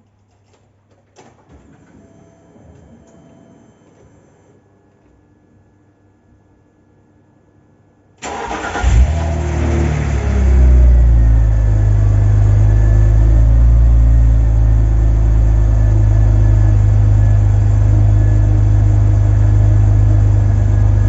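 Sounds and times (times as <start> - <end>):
car engine idling: 8.3 - 21.0.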